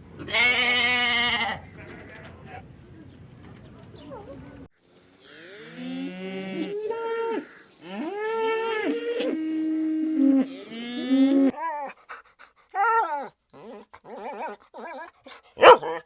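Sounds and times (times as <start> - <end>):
dogs yelping: 12.8 - 16.0.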